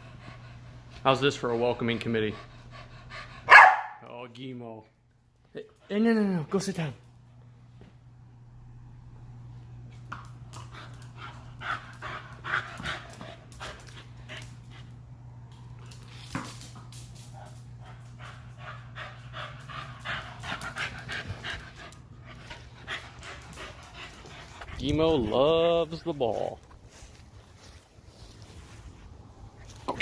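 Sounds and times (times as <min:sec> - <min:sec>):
dog panting: 0:00.0 - 0:03.5, 0:10.6 - 0:15.0, 0:17.4 - 0:29.8
steady low hum: 0:06.9 - 0:30.0.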